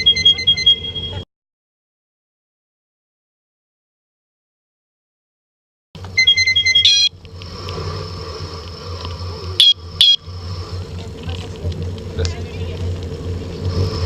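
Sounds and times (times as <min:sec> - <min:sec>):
engine running: 0:06.0 - 0:14.0.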